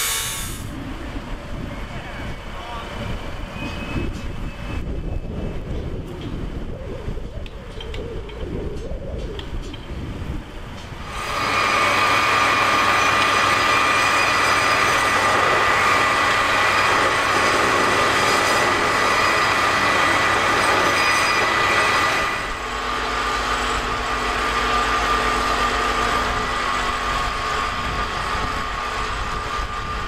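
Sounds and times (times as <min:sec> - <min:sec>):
freight train rumbling past: 0:00.0 - 0:06.6, 0:09.9 - 0:30.0
high wheel squeal: 0:11.2 - 0:22.6.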